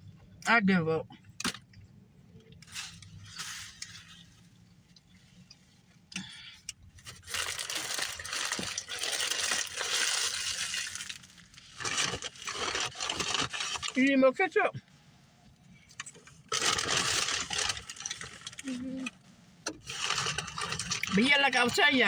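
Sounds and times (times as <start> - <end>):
paper and plastic packaging crinkling: 7.0 - 14.0, 16.4 - 19.1, 19.8 - 22.0.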